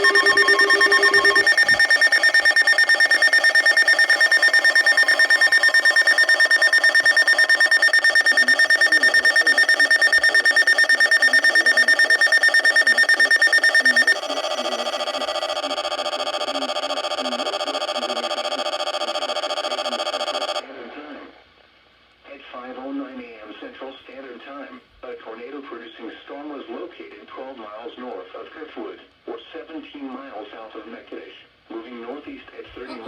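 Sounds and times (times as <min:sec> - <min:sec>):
electronic alarm pulsing tones: 0:00.0 - 0:20.6.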